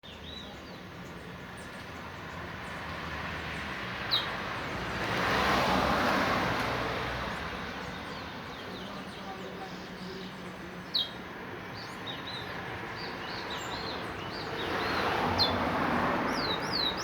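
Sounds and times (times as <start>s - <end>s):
vehicle passing: 3.0s - 7.4s, 14.2s - 17.0s
bird chirping: 16.3s - 17.0s.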